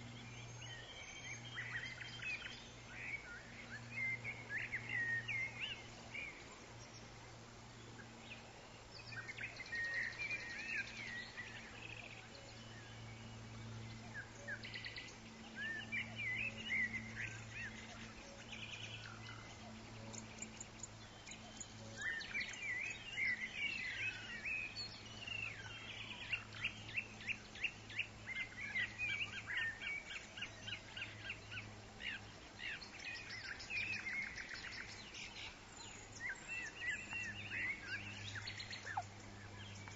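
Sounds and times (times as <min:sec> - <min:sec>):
faint low hum: 0:00.0 - 0:39.9
birds chirping and calling: 0:13.7 - 0:39.9.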